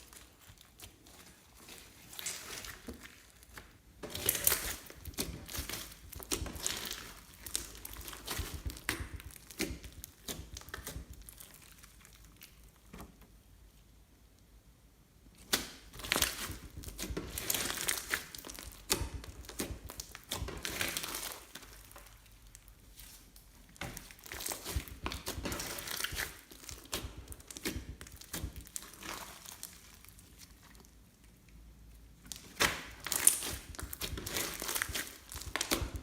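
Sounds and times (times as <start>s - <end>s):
slime crackling and popping: 0.0s - 13.2s, 15.4s - 36.0s.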